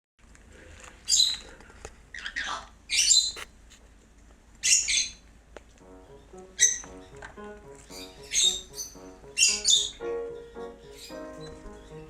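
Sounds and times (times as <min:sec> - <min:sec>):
cockatiel harsh calls: 0:04.6 - 0:05.2, 0:06.1 - 0:07.2, 0:07.9 - 0:10.0.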